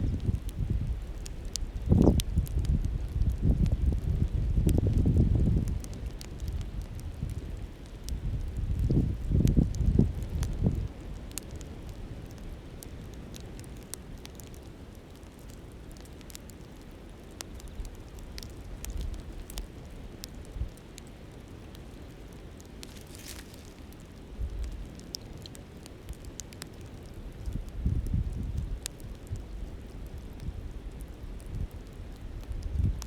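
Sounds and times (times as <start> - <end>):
wind on microphone: 0.0 - 10.9, 27.4 - 29.7, 31.3 - 33.0
campfire crackling: 0.0 - 33.0.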